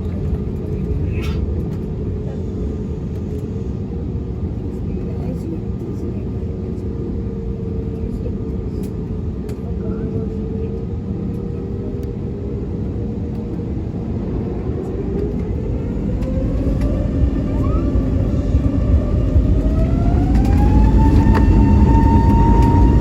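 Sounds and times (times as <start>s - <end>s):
deep rumble: 0.0s - 23.0s
jet engines spooling up: 11.2s - 23.0s.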